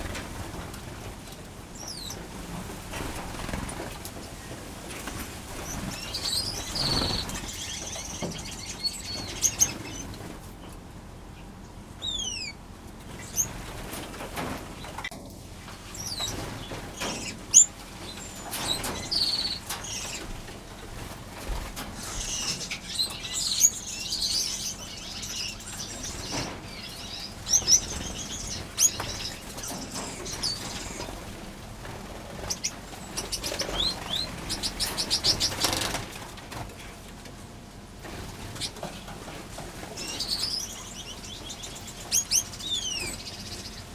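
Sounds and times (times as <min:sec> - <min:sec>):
finches chirping: 0:01.8 - 0:02.3, 0:05.5 - 0:10.2, 0:12.0 - 0:12.6, 0:15.9 - 0:20.4, 0:22.0 - 0:31.4, 0:32.2 - 0:36.0, 0:39.9 - 0:43.9.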